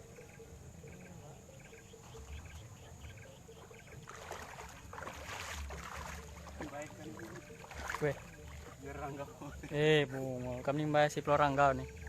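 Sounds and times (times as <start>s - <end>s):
faint chirps: 0.0s - 4.8s
water splashing and sloshing: 2.0s - 12.0s.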